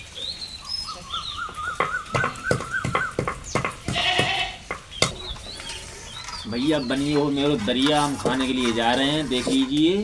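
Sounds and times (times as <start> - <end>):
sharp knocks: 1.8 - 5.3.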